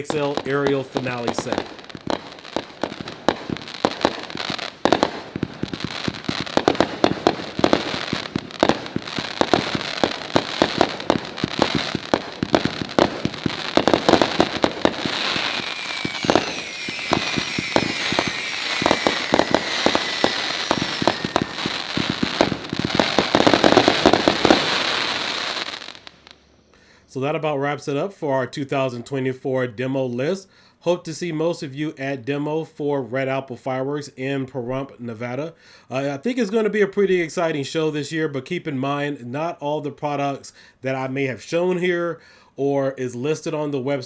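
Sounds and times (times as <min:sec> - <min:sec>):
firework launch thumps and bursts: 0:00.0 - 0:26.2
falling firework whistle: 0:01.3 - 0:26.8.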